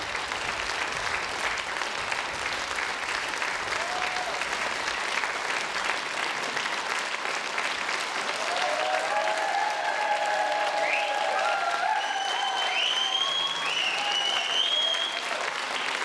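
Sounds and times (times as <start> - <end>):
audience applauding: 0.0 - 16.0
voices cheering and whooping: 3.7 - 4.4, 8.3 - 15.6.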